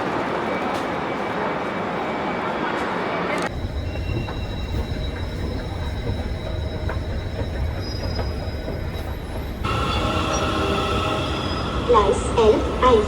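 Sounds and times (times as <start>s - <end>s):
train rumbling: 2.8s - 13.0s.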